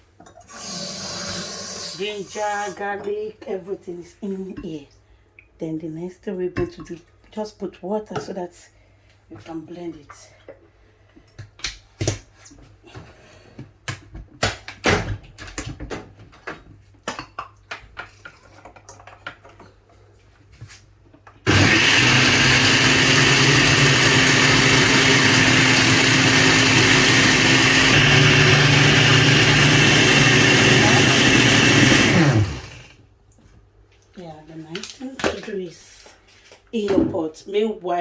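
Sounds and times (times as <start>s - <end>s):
electric blender running: 21.5s - 32.9s.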